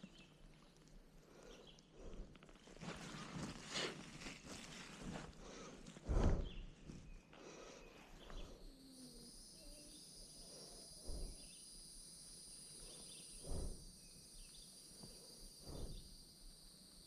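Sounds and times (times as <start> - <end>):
insects droning: 5.0 - 17.0
faint bird chirps: 6.4 - 16.4.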